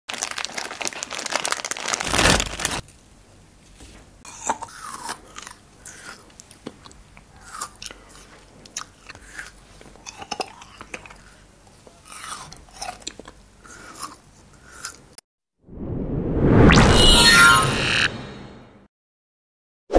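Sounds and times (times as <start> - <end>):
crunching frozen fruit: 0.1 - 2.9
chewing with wet mouth sounds: 4.3 - 15.2.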